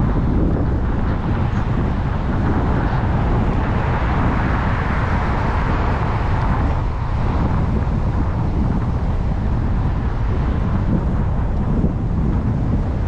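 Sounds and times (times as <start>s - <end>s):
road and tyre rumble: 0.0s - 13.0s
wind noise on microphone: 0.0s - 13.0s.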